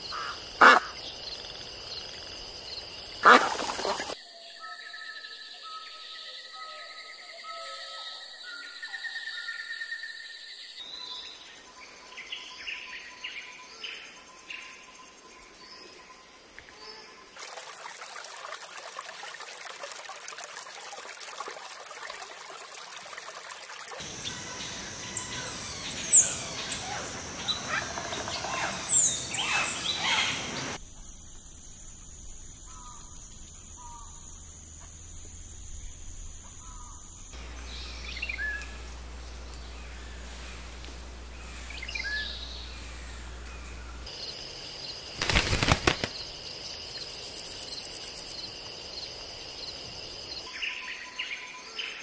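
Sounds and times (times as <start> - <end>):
birds chirping: 24.0 - 30.8, 35.7 - 46.4
steady hiss: 24.0 - 32.4, 37.3 - 50.4
faint steady tone: 30.6 - 44.4.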